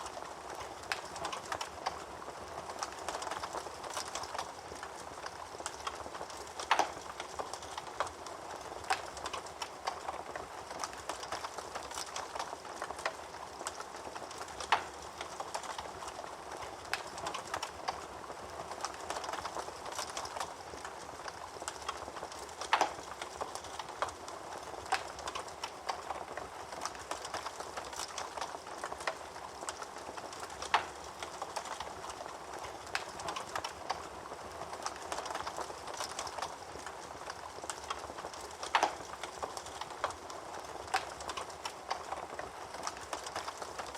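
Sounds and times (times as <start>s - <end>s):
fire popping: 0.0s - 43.9s
wood fire crackling: 0.0s - 43.9s.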